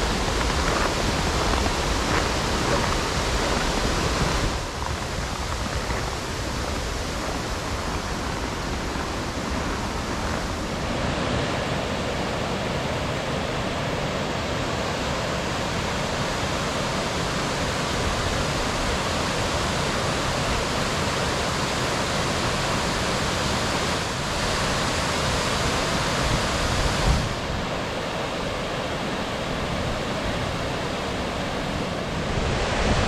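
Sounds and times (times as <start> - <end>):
waterfall roaring: 0.0 - 33.0.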